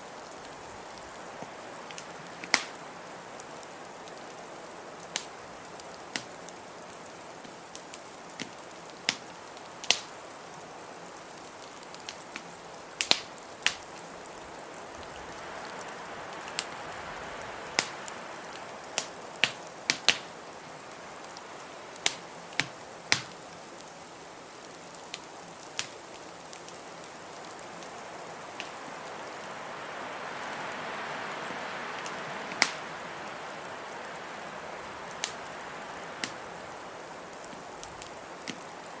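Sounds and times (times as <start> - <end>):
wood fire crackling and popping: 0.2 - 29.6, 31.9 - 33.0, 33.8 - 39.0
blizzard wind rushing: 14.2 - 19.4, 27.5 - 38.9.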